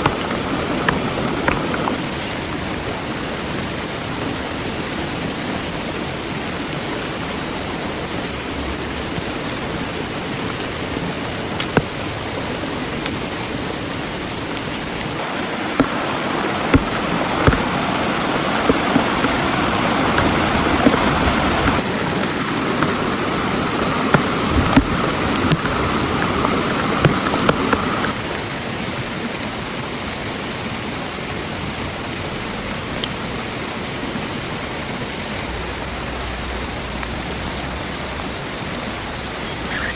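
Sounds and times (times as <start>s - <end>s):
heavy rain on a tent: 0.0s - 39.9s.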